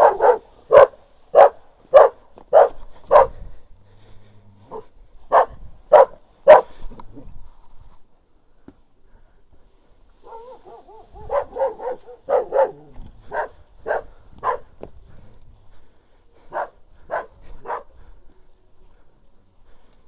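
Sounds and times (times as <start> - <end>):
dog barking: 0.0 - 3.4, 4.7 - 6.8, 10.2 - 14.7, 16.5 - 18.0.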